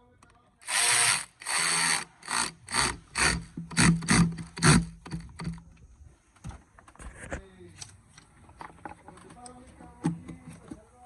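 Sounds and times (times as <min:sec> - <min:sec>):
tool rasping on fastener: 0:00.6 - 0:05.6.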